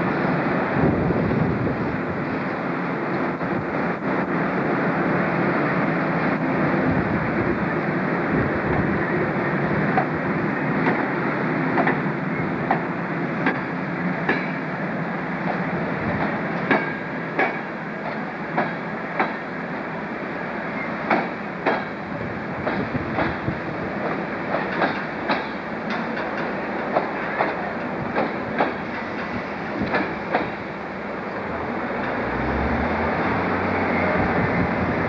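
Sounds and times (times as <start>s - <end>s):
train rolling rumble: 0.0s - 35.0s
wheels clicking over rail joints: 11.7s - 14.6s, 16.2s - 19.4s, 22.6s - 30.6s.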